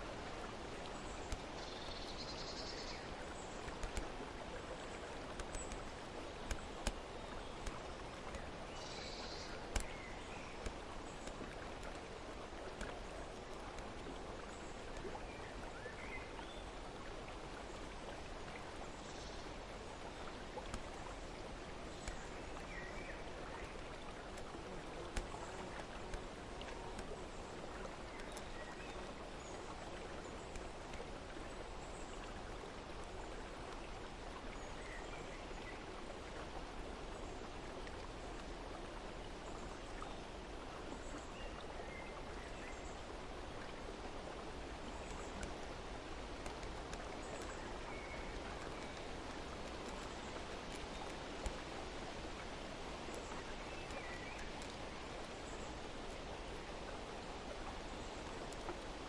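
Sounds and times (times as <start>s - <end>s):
flowing water: 0.0s - 59.0s.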